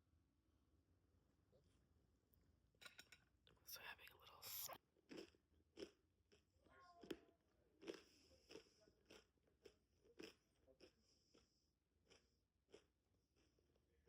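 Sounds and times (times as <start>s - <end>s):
person chewing crunchy food: 5.0s - 13.9s.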